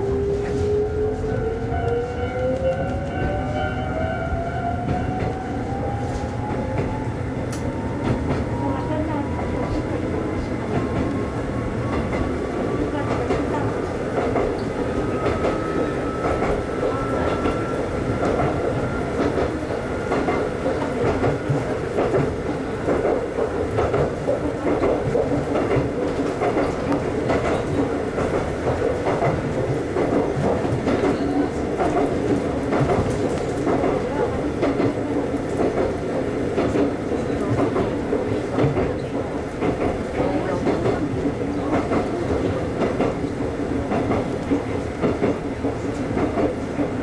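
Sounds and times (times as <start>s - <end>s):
train wheels clicking over rails: 9.2s - 47.0s.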